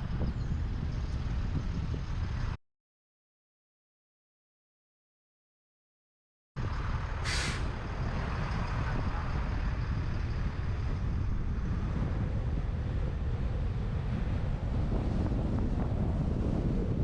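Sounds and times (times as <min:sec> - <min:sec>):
truck driving rumble: 0:00.0 - 0:02.6, 0:06.6 - 0:17.0
wind buffeting microphone: 0:00.0 - 0:02.6, 0:06.6 - 0:17.0
brief hiss: 0:07.2 - 0:07.7.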